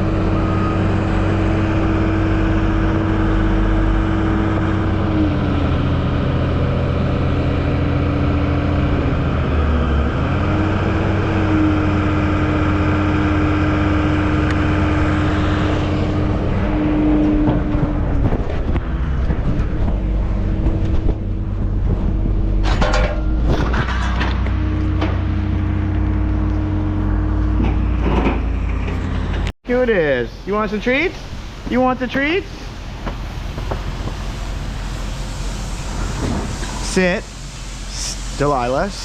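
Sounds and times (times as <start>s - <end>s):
vehicle engine running: 0.0s - 30.2s.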